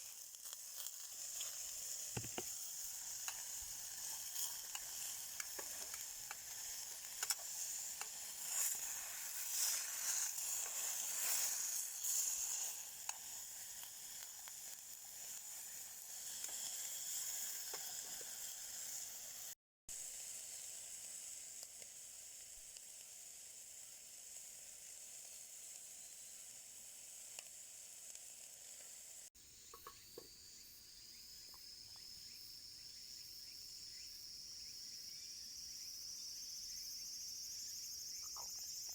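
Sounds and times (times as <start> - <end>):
insects chirring: 0.0 - 19.4, 29.4 - 38.9
meat sizzling on a grill: 0.0 - 29.9.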